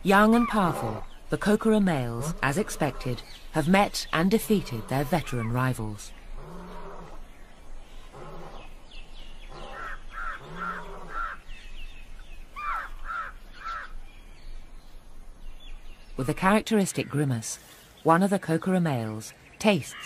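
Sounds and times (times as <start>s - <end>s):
bird cawing: 9.5s - 11.4s, 12.6s - 14.0s.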